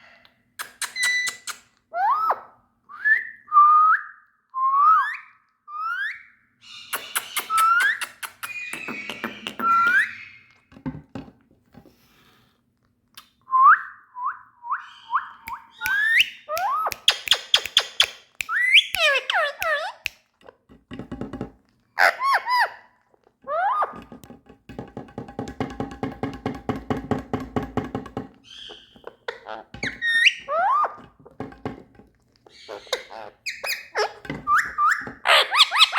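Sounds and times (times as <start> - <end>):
parrot chattering: 15.9 - 20.0, 32.6 - 35.9.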